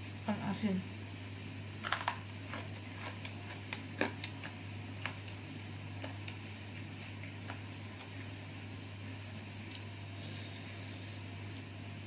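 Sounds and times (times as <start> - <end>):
steady low hum: 0.0 - 12.0
person chewing food: 1.8 - 8.5, 9.6 - 10.2, 11.0 - 11.8.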